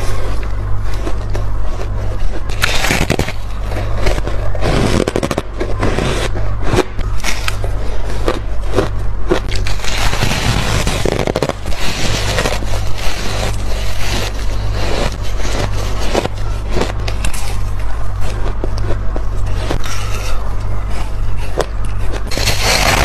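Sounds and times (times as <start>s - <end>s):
crunching frozen food: 0.0s - 23.0s
low steady hum: 0.0s - 23.0s.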